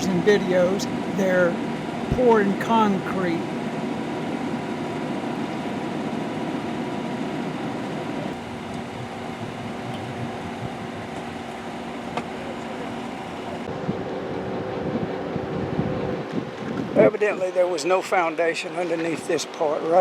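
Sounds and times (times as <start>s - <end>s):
machine humming: 0.0s - 6.6s, 7.3s - 13.7s.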